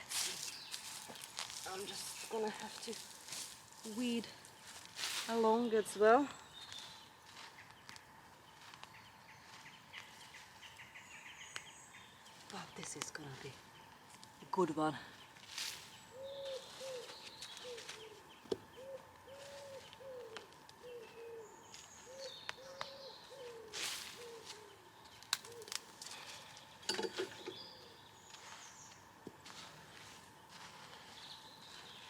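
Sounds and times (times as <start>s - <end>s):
small birds chirping: 0.0s - 32.0s
dove cooing: 16.1s - 25.8s.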